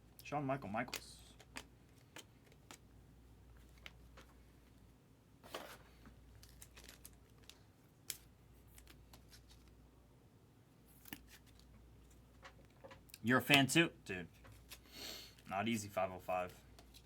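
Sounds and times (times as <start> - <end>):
trading card wrappers rustling: 0.8 - 2.9, 5.5 - 9.8, 10.9 - 17.0.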